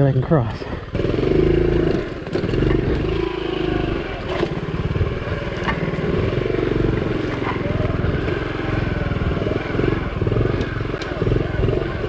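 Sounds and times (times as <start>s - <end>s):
small motorbike engine running: 0.9s - 12.0s
knocks and rattles: 4.2s - 8.4s.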